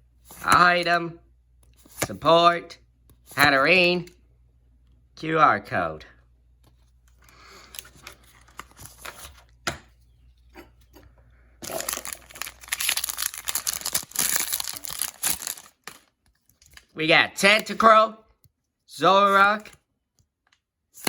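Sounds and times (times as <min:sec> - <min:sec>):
foil wrapper tearing open: 0:11.6 - 0:16.9
foil wrapper crinkling: 0:11.6 - 0:17.0.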